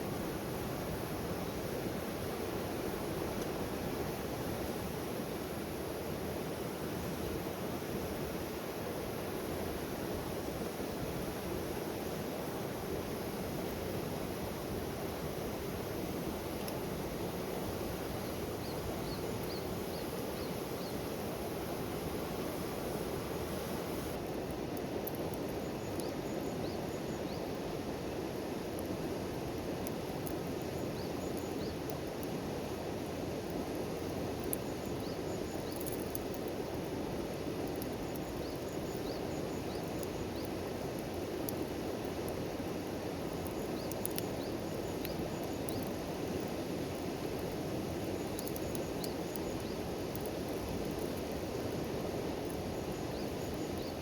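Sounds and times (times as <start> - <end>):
small ticks: 29.8 - 32.4, 34.4 - 36.8, 37.6 - 42.4, 43.4 - 47.6, 48.2 - 54.0.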